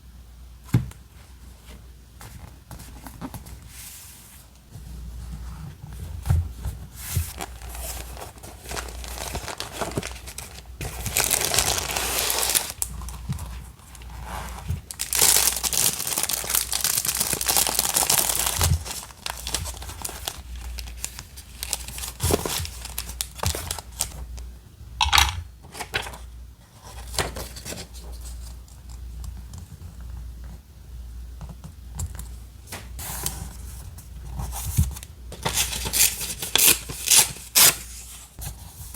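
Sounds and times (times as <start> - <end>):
paper crinkling: 7.0 - 24.4, 34.4 - 38.9.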